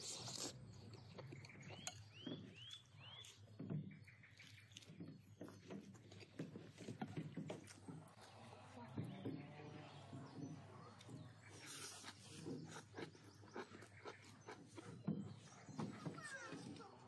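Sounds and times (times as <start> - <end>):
bird chirping: 0.0 - 8.2, 8.8 - 17.0
man chewing and smacking: 0.0 - 8.3, 11.3 - 16.0.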